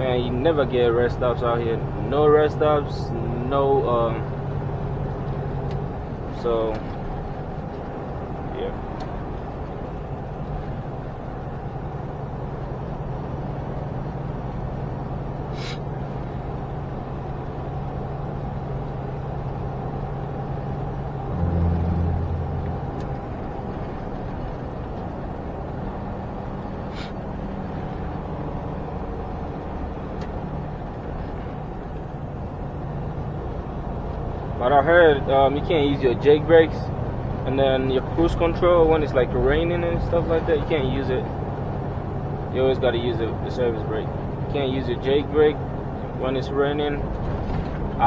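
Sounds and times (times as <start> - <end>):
truck engine and road noise: 0.0 - 48.0
low rumble: 3.0 - 35.8.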